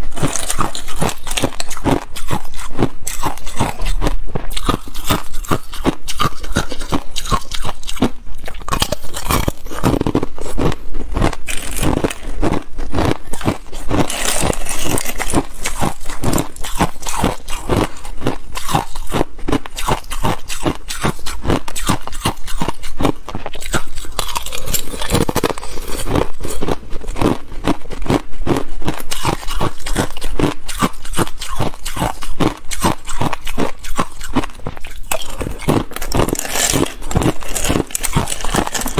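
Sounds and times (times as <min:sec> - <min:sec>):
ice crunching while chewed: 0:00.0 - 0:38.9.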